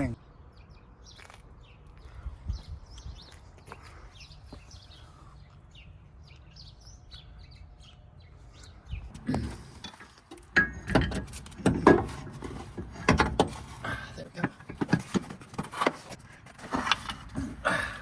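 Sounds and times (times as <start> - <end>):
birds chirping faintly: 0.0 - 15.2
knocks and clunks on car suspension: 10.4 - 16.0.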